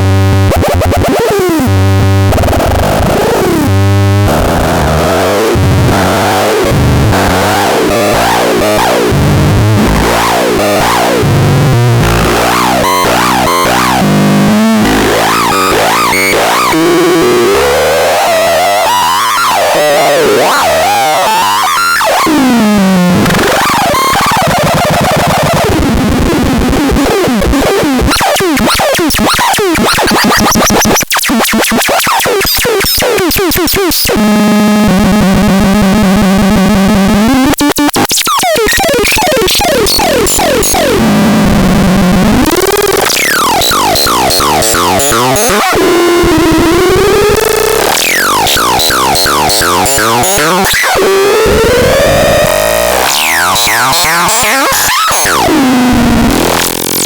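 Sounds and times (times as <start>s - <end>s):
harsh chaotic synthesizer tones: 0.0s - 57.0s
rapid stuttering clicks: 37.5s - 57.0s.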